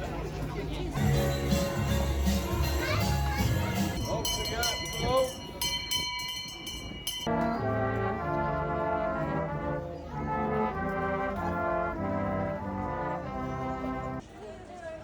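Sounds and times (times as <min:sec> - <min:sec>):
brass ensemble playing chords: 0:01.0 - 0:04.3, 0:07.3 - 0:14.2.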